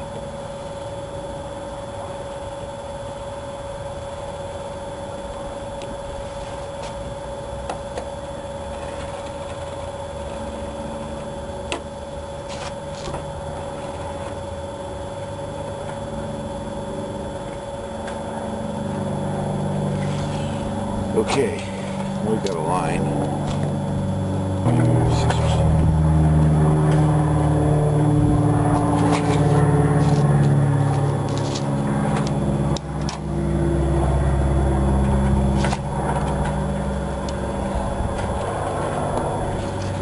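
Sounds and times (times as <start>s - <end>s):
steady mechanical hum: 0.0s - 40.0s
vehicle engine: 18.0s - 40.0s.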